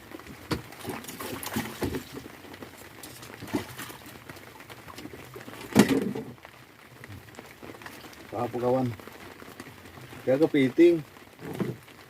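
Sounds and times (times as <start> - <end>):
knocks in a small boat: 0.3 - 2.0.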